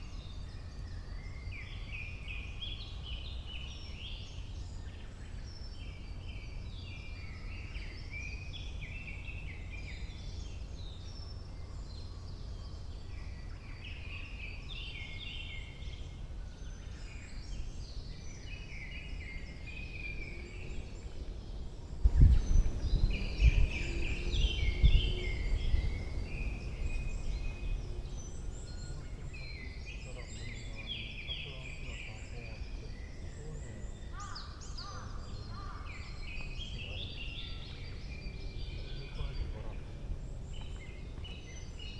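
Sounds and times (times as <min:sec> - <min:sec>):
birds singing and chirping: 0:00.0 - 0:41.9
loud low rumbling: 0:21.9 - 0:29.5.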